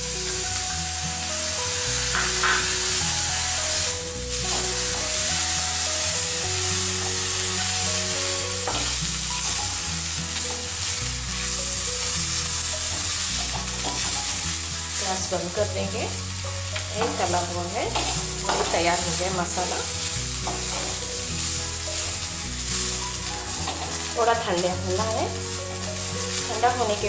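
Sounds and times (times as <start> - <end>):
background music with bass line: 0.0 - 27.0
masala sizzling in a pan: 0.0 - 27.0
spatula scraping a pan: 17.9 - 24.3.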